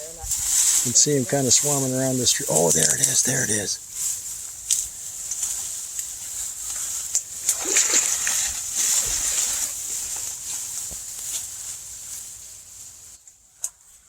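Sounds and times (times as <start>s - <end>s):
wading through shallow water: 5.8s - 10.8s.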